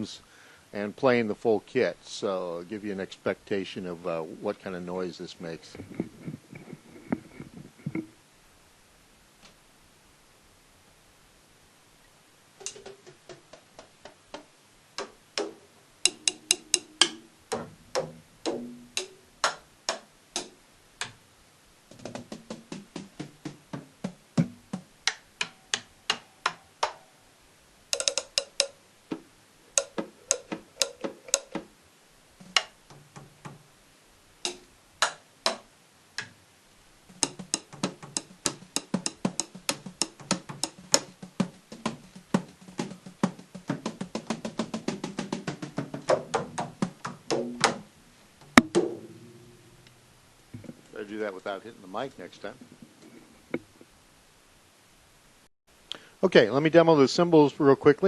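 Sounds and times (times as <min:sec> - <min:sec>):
drumsticks tapping drum pads: 0:12.6 - 0:21.2, 0:21.9 - 0:27.0, 0:27.9 - 0:31.7, 0:32.4 - 0:33.6, 0:34.4 - 0:36.4, 0:37.1 - 0:51.0.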